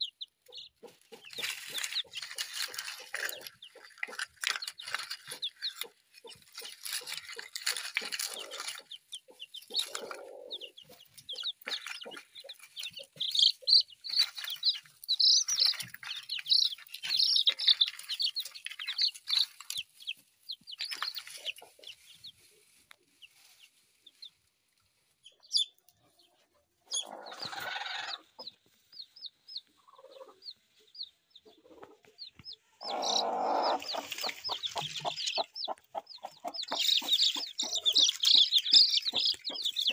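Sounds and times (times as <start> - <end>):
chickens calling: 0.0 - 39.9
scuffling rustling: 1.1 - 8.9.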